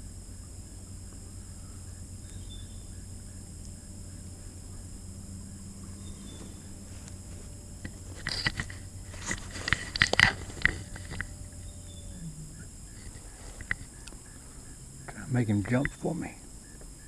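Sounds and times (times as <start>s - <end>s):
high-pitched insect drone: 0.0s - 17.0s
low hum: 0.0s - 17.0s
light clicks and knocks: 5.8s - 16.0s.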